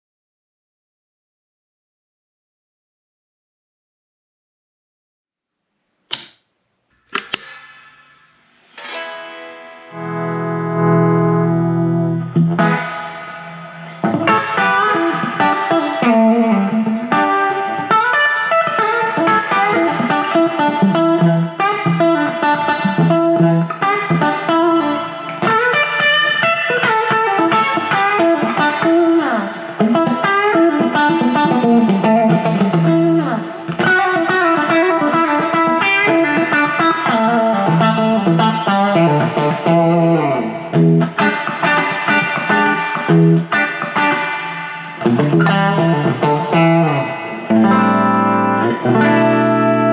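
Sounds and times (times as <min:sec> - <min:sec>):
electric guitar melody: 0:08.7 - 0:49.9.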